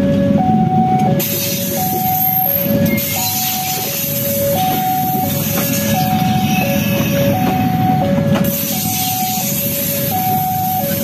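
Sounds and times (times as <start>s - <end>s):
train wheels rumbling on rails: 0.0s - 11.0s
two-tone crossing alarm: 0.0s - 11.0s.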